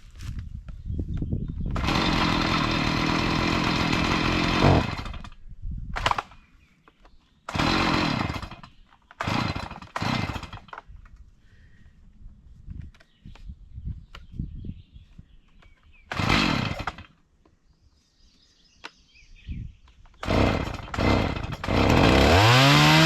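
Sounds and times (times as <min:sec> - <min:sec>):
chainsaw cutting: 0:01.7 - 0:05.4, 0:06.0 - 0:06.4, 0:07.5 - 0:10.8, 0:16.1 - 0:17.2, 0:20.2 - 0:23.0.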